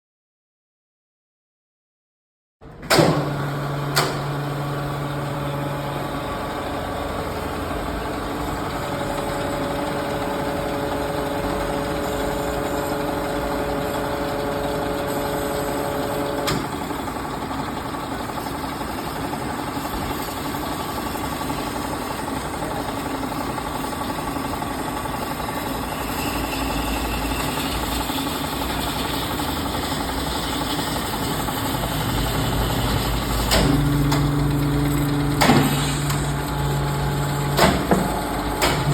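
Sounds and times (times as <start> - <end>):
mechanical whir: 2.7 - 38.9
bandsaw motor humming: 20.4 - 38.9.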